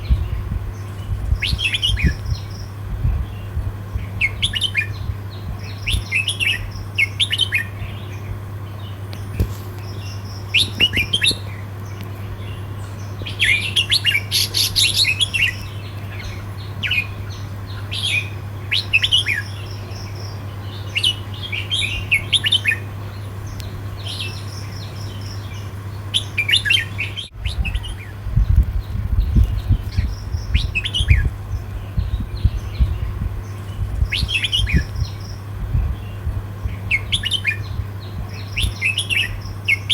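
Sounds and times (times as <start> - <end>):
low thumping rumbles: 0.0 - 6.0, 27.3 - 38.8
bulbul singing warbled phrases: 0.0 - 39.9
steady low hum: 0.0 - 39.9.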